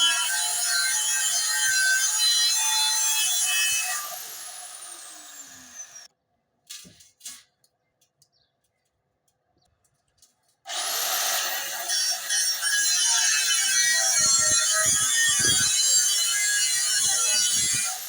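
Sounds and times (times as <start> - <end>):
angle grinder whine: 3.8 - 6.1.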